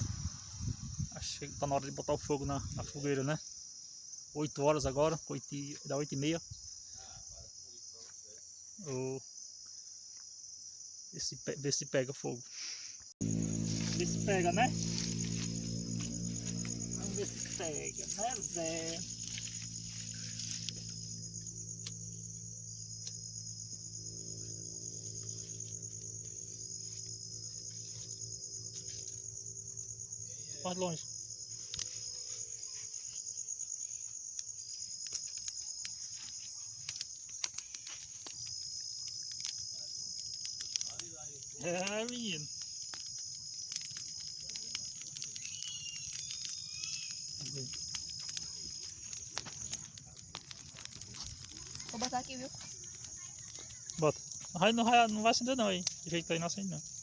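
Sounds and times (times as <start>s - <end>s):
crickets trilling: 0.0s - 57.0s
low hum: 13.2s - 30.6s.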